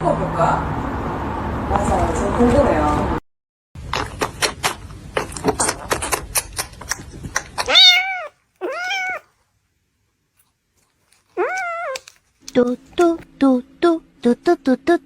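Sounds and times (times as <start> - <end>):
kitten meowing: 7.6 - 9.3, 11.4 - 12.1.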